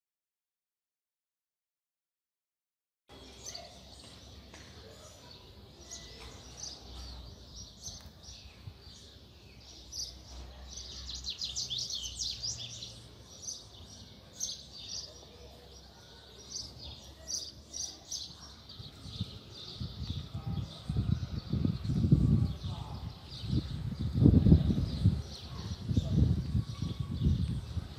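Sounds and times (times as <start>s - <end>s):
small birds chirping: 3.1s - 27.9s.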